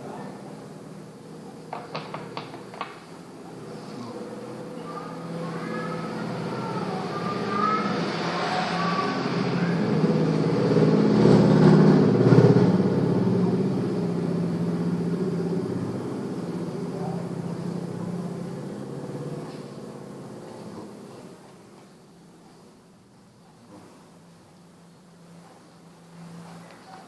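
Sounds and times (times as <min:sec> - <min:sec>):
vehicle engine passing by: 0:03.4 - 0:21.4.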